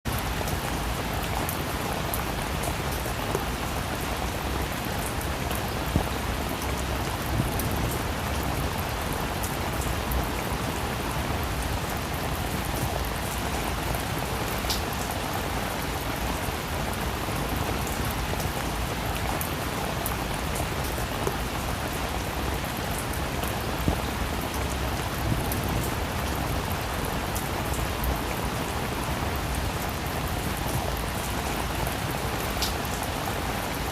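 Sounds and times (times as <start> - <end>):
steady rain hiss: 0.1 - 33.9.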